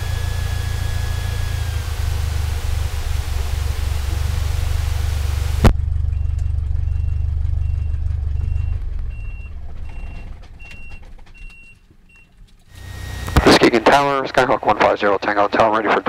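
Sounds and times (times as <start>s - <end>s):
aircraft engine droning: 0.0s - 10.7s, 12.7s - 14.4s
short electronic beeps: 12.7s - 13.6s.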